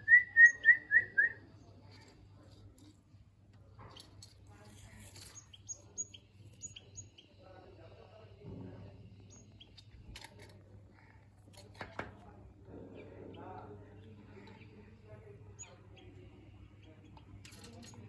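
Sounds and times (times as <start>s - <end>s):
high-pitched bird calls: 0.0s - 1.3s.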